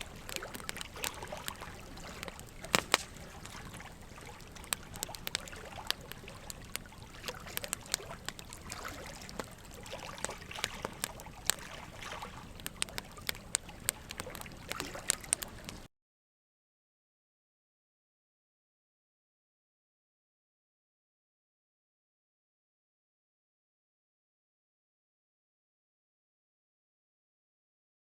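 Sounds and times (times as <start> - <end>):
soft fire hiss: 0.0 - 15.9
wood fire crackling: 0.0 - 15.9.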